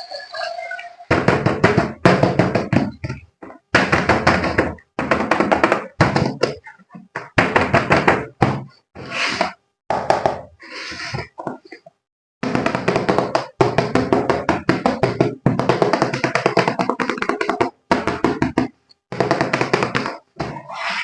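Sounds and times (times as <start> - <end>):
rapid knocking and tapping: 1.1 - 8.8, 12.4 - 20.6.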